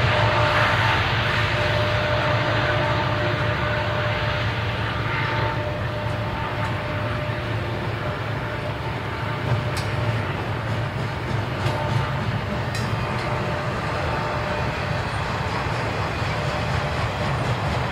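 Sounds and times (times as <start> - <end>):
steel wheels rumbling on rail: 0.0 - 17.9.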